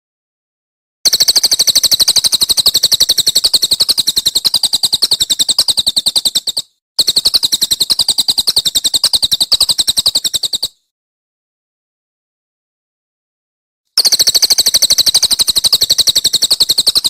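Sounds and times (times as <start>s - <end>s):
songbird rattling trill: 1.1s - 10.8s, 14.0s - 17.0s.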